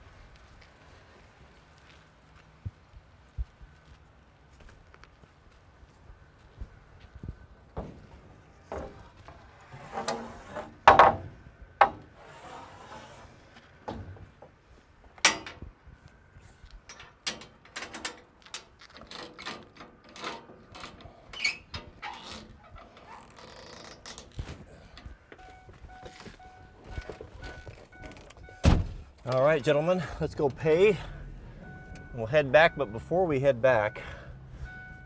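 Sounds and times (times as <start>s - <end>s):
wooden boards knocking and clattering: 10.8s - 12.1s.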